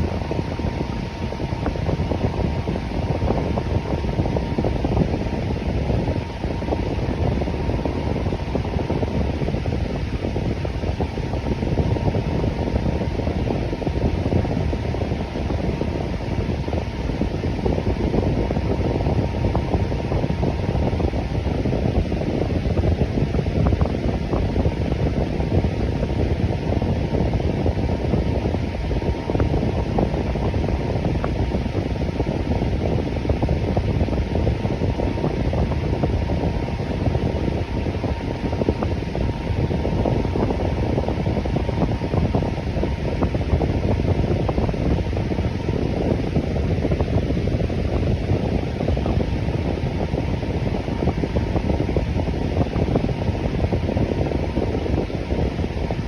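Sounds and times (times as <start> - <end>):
fan running: 0.0 - 56.0.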